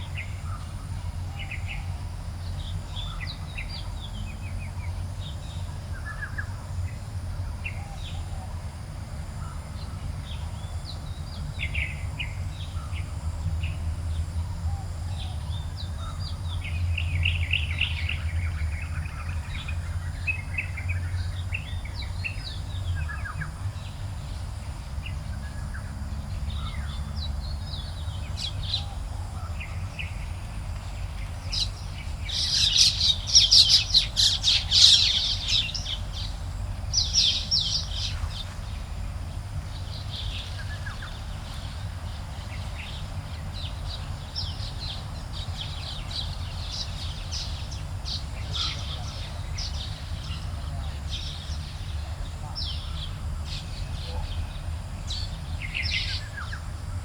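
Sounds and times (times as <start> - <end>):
low background rumble: 0.0 - 57.0
birds chirping: 9.5 - 57.0.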